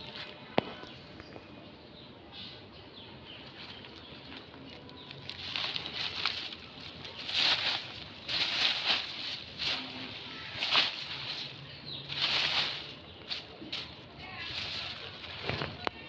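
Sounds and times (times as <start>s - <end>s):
plastic rustling and crinkling: 3.5s - 16.0s.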